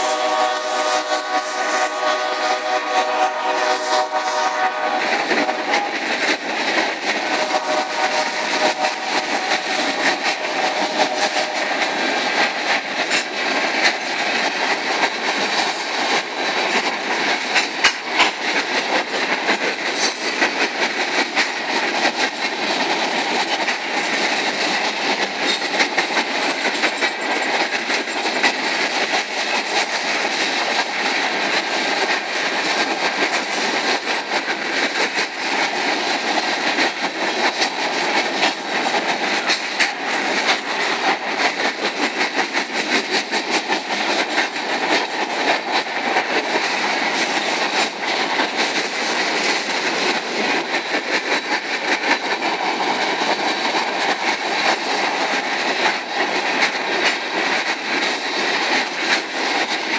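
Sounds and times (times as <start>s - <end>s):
locomotive horn: 0.0s - 6.0s, 7.2s - 11.9s
train wheels rumbling on rail: 0.0s - 59.9s
wheels clacking over rail joints: 0.0s - 59.9s.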